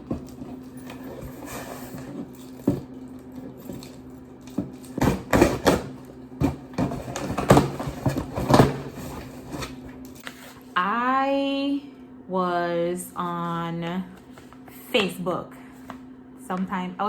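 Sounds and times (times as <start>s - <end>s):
packaging rustling and scraping: 0.0s - 10.7s
steady low hum: 0.0s - 17.0s.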